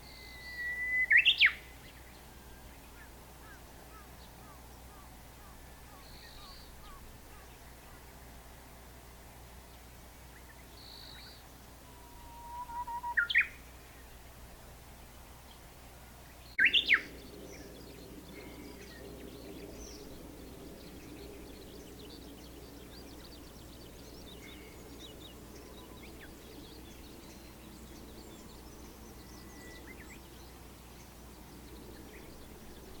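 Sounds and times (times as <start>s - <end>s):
bush warbler singing: 0.0s - 8.0s, 16.3s - 33.0s
faint bird chirps: 10.8s - 13.6s.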